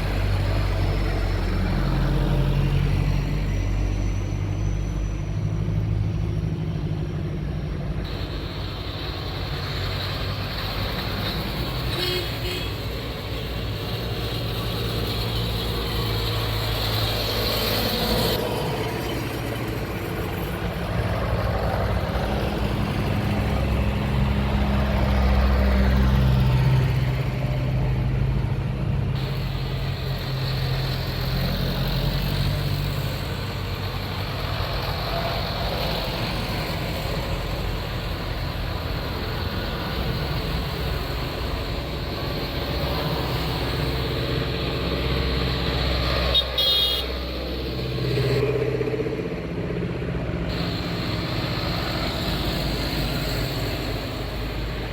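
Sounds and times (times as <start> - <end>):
tractor engines running: 0.0 - 54.9
horn toot: 11.9 - 12.8, 46.3 - 47.2.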